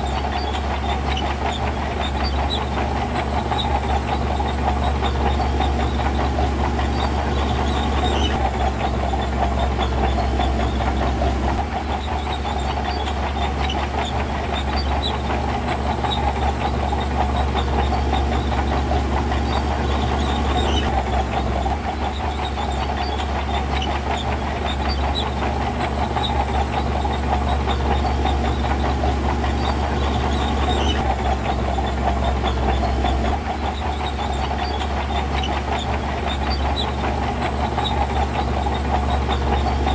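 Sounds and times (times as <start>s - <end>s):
diesel engine rumbling: 0.0s - 39.9s.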